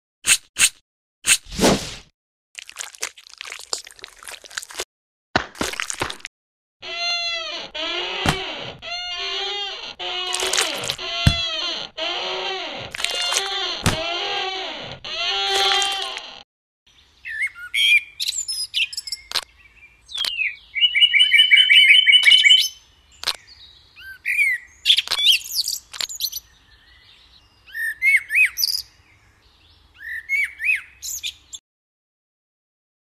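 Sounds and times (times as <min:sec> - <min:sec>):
songbirds chirping and singing: 0:16.9 - 0:31.6.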